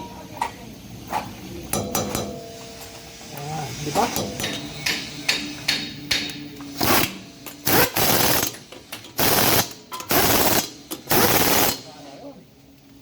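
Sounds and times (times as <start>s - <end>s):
impact wrench rattling bursts: 6.7s - 11.9s.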